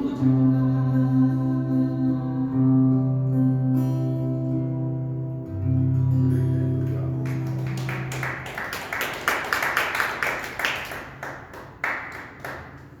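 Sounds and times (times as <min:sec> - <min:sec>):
guitar chord ringing: 0:00.1 - 0:08.2
audience clapping: 0:06.8 - 0:13.0.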